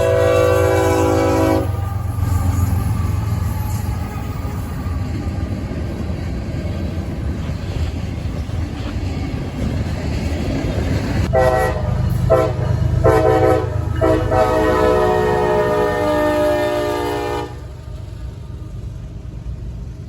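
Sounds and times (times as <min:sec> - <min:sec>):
train air horn blasts: 0:00.0 - 0:03.9, 0:11.3 - 0:17.9
locomotive engine rumbling: 0:00.0 - 0:20.0.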